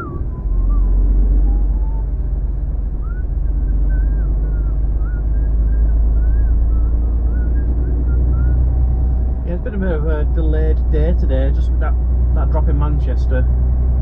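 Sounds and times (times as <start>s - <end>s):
faint wavering high tones: 0.0s - 4.7s
lorry engine and road rumble: 0.0s - 14.0s.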